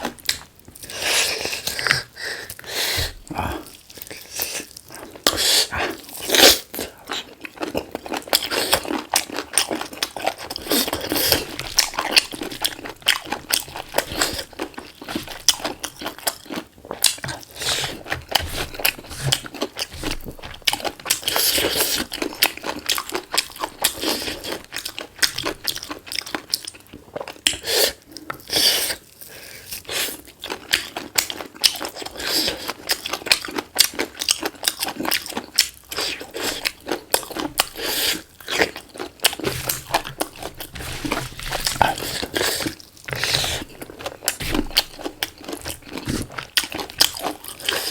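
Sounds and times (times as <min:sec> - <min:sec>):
wet chewing: 0:00.0 - 0:27.6, 0:30.4 - 0:47.9
crunching bites: 0:38.5 - 0:47.7.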